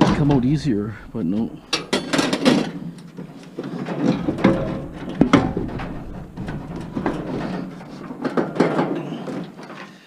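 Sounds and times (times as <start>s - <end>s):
metal clanks and rattles: 0.0s - 10.0s
sharp metal knocks: 4.2s - 8.9s.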